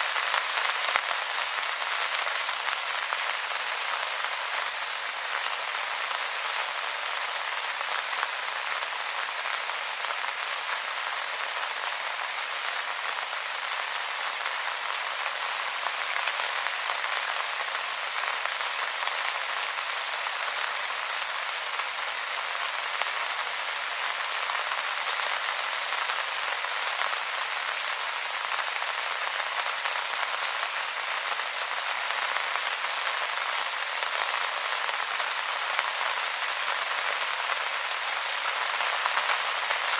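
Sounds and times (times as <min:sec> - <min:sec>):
rain falling on wet leaves: 0:00.0 - 0:39.9.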